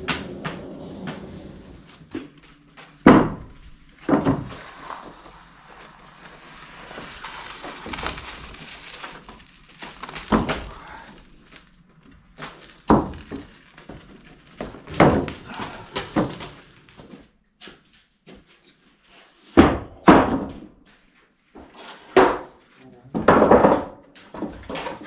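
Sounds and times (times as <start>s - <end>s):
heavy thuds and knocks: 0.0s - 5.4s, 6.9s - 11.5s, 12.4s - 16.6s
rustling scraping noise: 0.0s - 17.2s.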